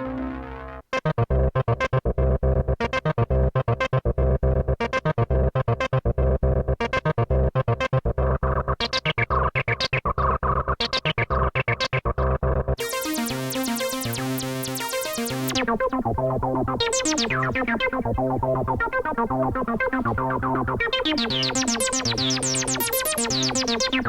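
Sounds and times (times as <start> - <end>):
synth bass line: 12.2 - 24.0
synthesizer staccato sequence: 12.8 - 24.0.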